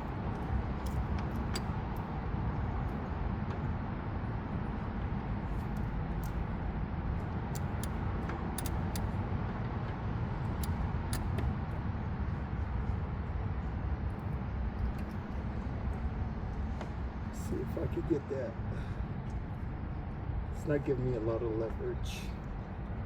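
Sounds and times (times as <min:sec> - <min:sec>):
socket wrench clicks: 0:00.8 - 0:02.1, 0:05.6 - 0:06.4, 0:07.5 - 0:08.0, 0:08.6 - 0:09.2, 0:10.6 - 0:11.3.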